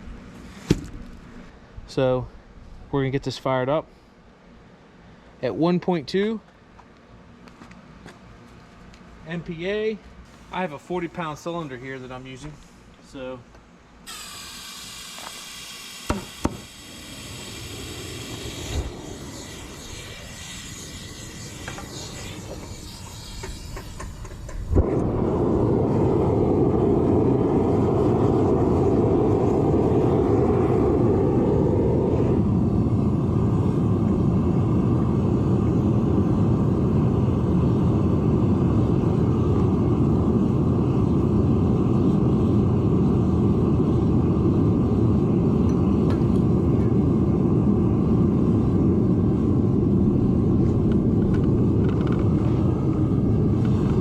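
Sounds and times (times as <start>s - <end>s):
furnace burner roaring: 0.0s - 6.2s, 7.0s - 54.0s
burner igniting with a pop: 0.3s - 1.3s, 14.1s - 32.5s, 45.6s - 47.1s, 50.4s - 54.0s
gas hissing: 14.0s - 54.0s.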